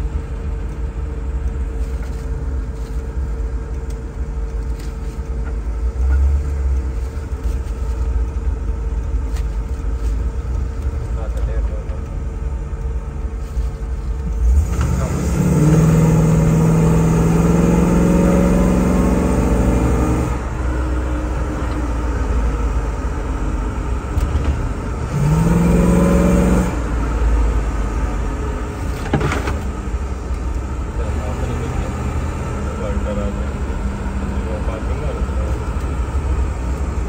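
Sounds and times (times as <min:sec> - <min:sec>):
car engine revving: 0:14.2 - 0:29.8.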